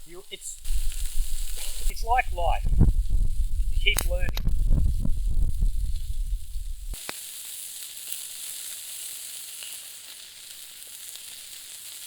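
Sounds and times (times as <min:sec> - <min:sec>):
low rumble on microphone: 0:00.0 - 0:07.0
sausages sizzling: 0:00.0 - 0:12.0.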